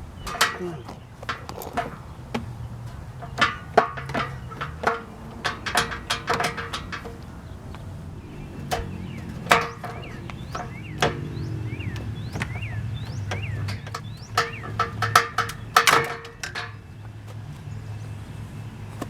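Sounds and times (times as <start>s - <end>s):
tools knocking and clattering: 0.2s - 17.0s.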